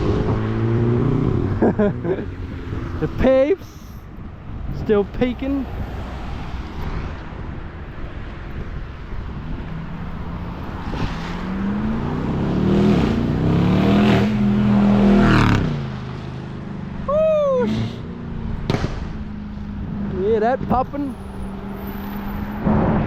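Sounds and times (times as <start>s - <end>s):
car engine accelerating hard: 9.5s - 16.2s
exhaust pops crackling: 18.6s - 19.4s.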